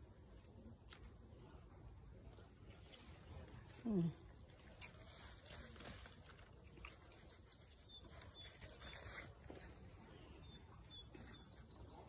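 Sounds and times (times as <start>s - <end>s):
faint bird chirps: 2.8s - 12.0s.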